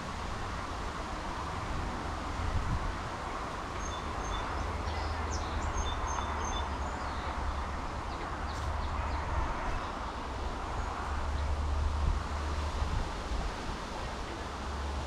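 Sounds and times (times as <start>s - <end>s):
songbirds twittering: 3.2s - 11.6s.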